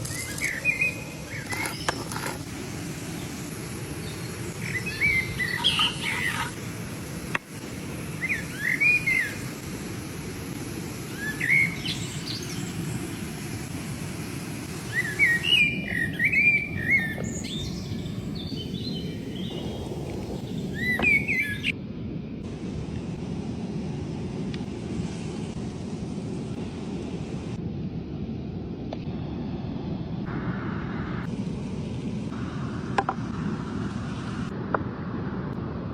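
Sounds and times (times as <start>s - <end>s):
birds chirping: 0.0s - 2.3s, 3.1s - 6.6s, 8.2s - 9.5s, 11.0s - 13.6s, 14.7s - 21.7s
steady low rumble: 2.4s - 35.9s.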